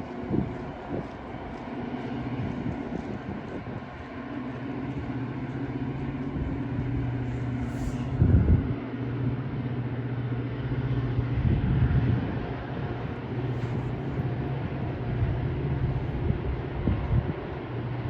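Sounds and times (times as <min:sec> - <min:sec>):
diesel locomotive engine humming: 0:00.0 - 0:18.0.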